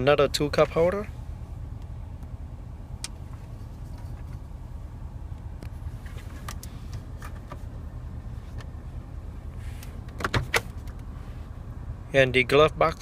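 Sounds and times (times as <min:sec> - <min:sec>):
low rumble inside car: 0:00.0 - 0:13.0.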